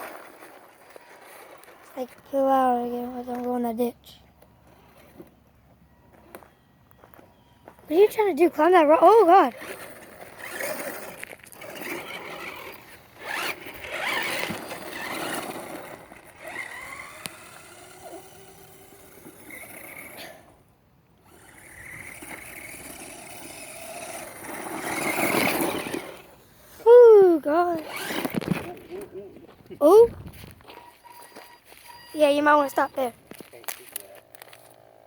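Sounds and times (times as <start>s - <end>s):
toy truck electric motor whirring: 0.0s - 2.3s, 9.2s - 20.6s, 21.2s - 26.4s, 27.4s - 28.9s, 33.9s - 35.0s.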